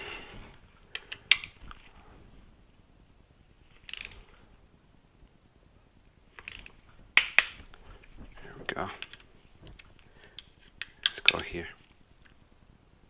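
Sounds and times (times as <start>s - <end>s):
torque wrench ratchet clicks: 3.9s - 4.2s, 6.4s - 6.7s.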